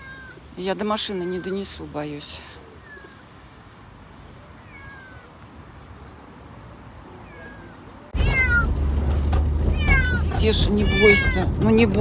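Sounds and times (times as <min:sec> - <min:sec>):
kitten meowing: 0:04.6 - 0:05.4, 0:07.2 - 0:08.7, 0:09.7 - 0:11.4
low rumble: 0:08.2 - 0:12.0.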